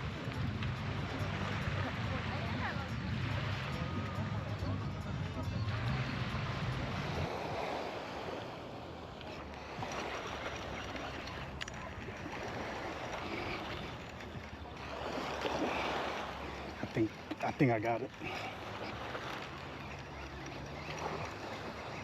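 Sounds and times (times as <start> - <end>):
wind on microphone: 0.0 - 17.4
water washing at shore: 0.0 - 22.0.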